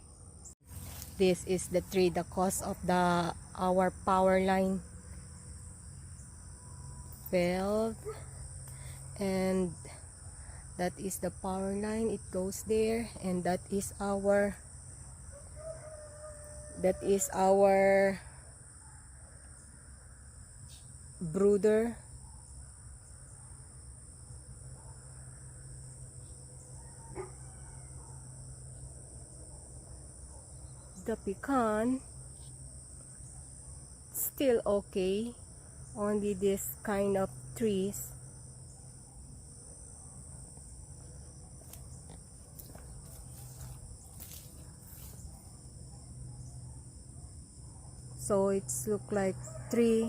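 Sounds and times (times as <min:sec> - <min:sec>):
insects chorus: 0:00.0 - 0:50.0.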